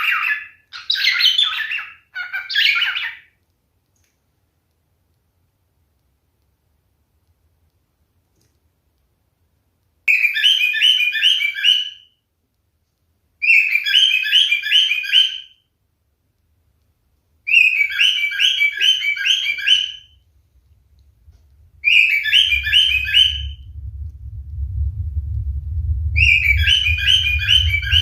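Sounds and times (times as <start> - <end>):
cockatiel whistling: 10.1 - 12.0, 13.4 - 15.5, 17.5 - 20.2, 21.8 - 23.6, 26.2 - 28.0
low rumble: 20.2 - 28.0.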